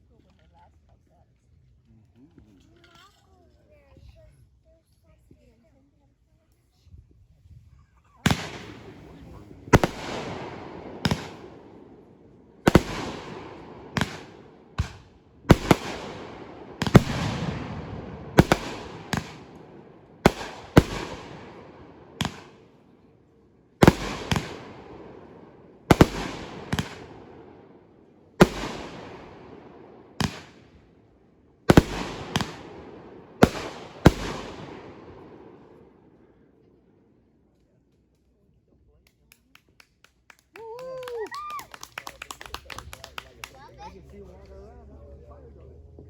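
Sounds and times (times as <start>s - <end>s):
fireworks bangs: 8.2s - 22.8s, 23.8s - 30.8s, 31.7s - 36.3s.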